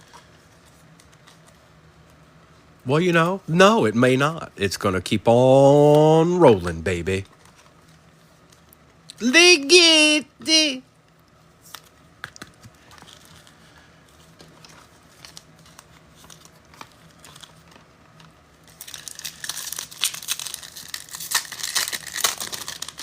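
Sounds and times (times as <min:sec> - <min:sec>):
card pack wrapper tearing: 0:18.7 - 0:23.0.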